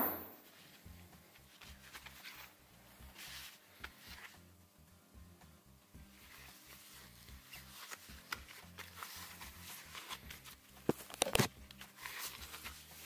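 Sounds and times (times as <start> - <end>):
sharp knocks: 0.0 - 0.4.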